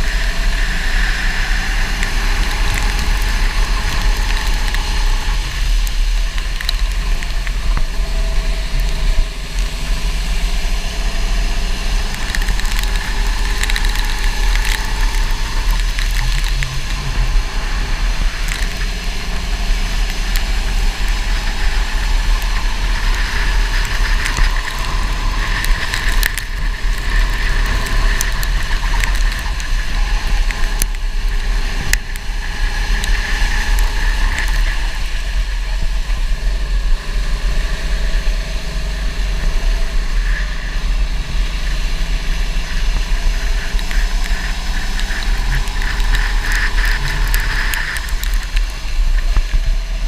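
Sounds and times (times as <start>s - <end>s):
go-kart engine running: 0.0s - 50.0s
heavy low rumble: 0.0s - 50.0s.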